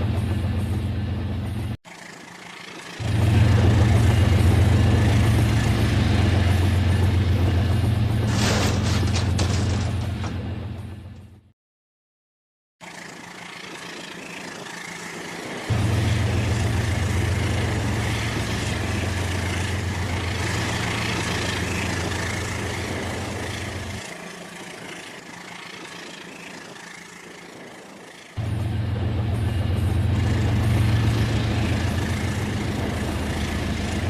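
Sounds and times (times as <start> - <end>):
toy train running on track: 12.8 - 15.7, 16.3 - 28.4.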